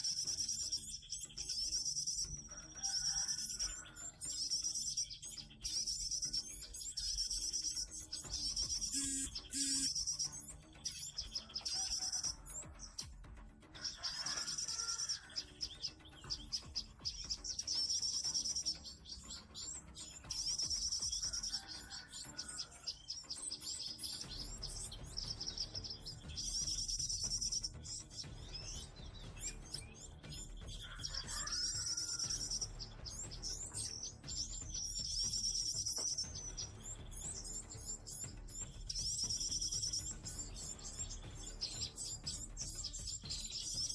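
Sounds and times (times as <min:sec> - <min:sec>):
songbirds twittering: 0:00.0 - 0:43.9
bird whistled call: 0:04.6 - 0:12.5.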